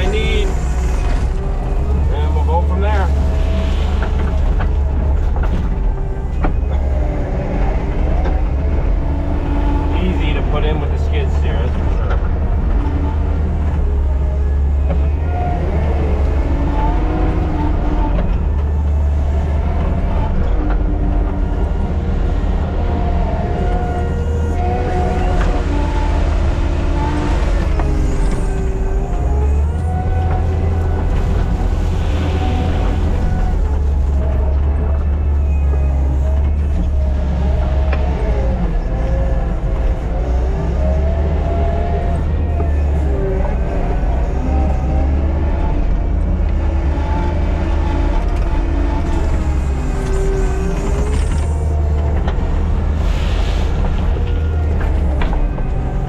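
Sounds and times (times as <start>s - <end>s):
squealing sliding tones: 0.0s - 11.6s, 23.2s - 45.7s, 46.8s - 56.0s
diesel engine running: 0.0s - 56.0s
knocks and clanks of tracks: 0.0s - 56.0s.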